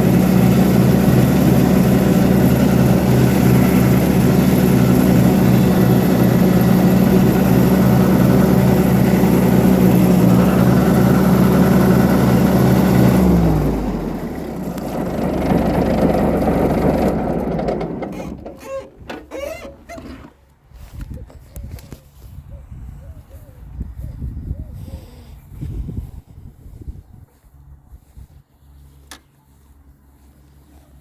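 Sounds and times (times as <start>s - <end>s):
tractor engine running and stopping: 0.0s - 21.2s.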